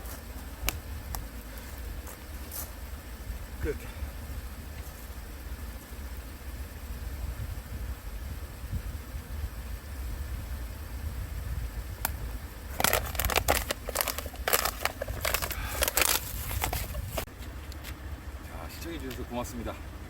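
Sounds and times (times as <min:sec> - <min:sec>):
low steady rumble: 0:00.0 - 0:20.0
plastic material crinkling: 0:12.7 - 0:17.3.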